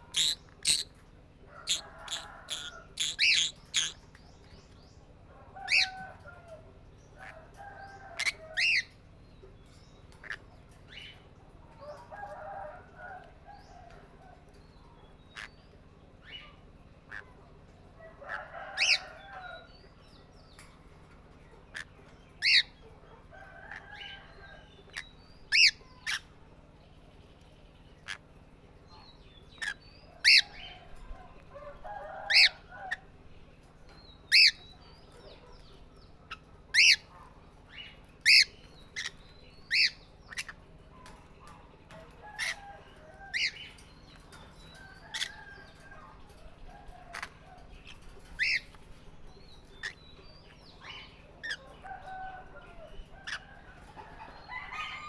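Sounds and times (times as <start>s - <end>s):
parrots soft chattering: 0.0s - 1.0s, 1.6s - 4.2s, 8.2s - 8.9s, 10.1s - 11.1s, 16.3s - 17.4s, 29.6s - 31.5s, 36.3s - 37.1s, 38.2s - 45.9s, 47.0s - 48.9s, 49.6s - 50.0s
parrot sharp chirps: 0.2s - 0.9s, 1.6s - 4.0s.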